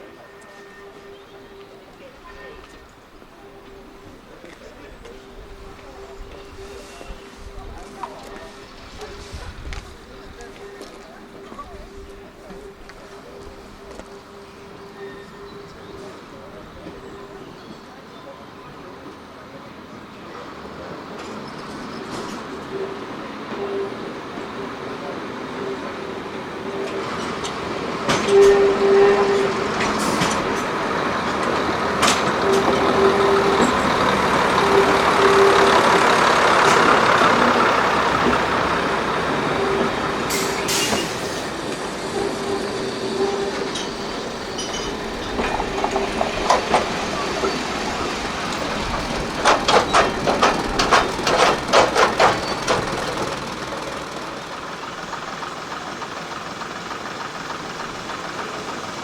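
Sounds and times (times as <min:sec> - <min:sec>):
train passing: 0:00.0 - 0:59.0
wheel clicks over rail joints: 0:44.6 - 0:59.0.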